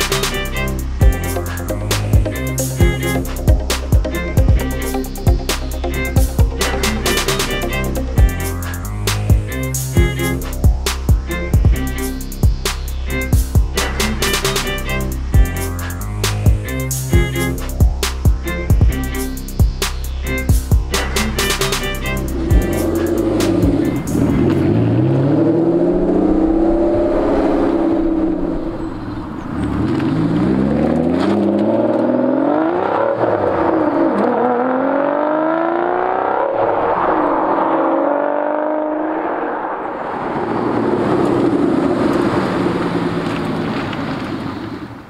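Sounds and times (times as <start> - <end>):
car engine accelerating: 20.3 - 44.6
car passing by: 23.4 - 45.0.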